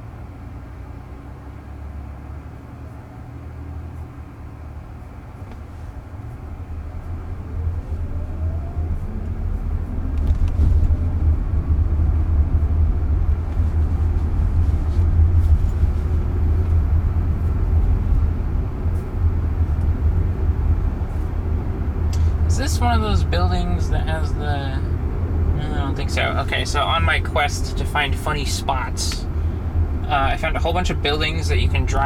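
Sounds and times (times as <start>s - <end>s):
road and tyre rumble: 0.0s - 32.0s
faint rising motor whine: 6.5s - 13.4s.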